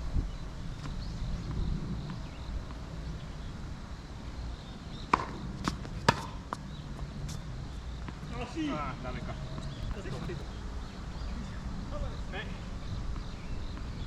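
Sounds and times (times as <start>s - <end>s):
wind rumble on microphone: 0.0s - 14.0s
tennis ball hitting hard court: 5.1s - 6.5s.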